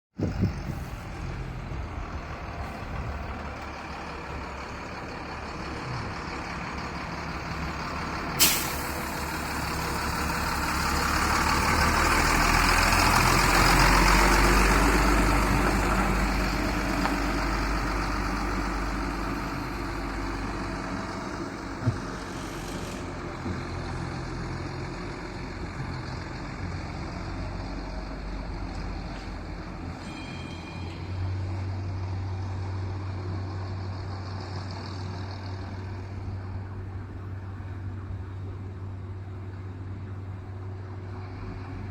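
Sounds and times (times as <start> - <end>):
diesel truck engine rumbling: 0.2 - 41.9
air brake hiss: 8.4 - 9.6.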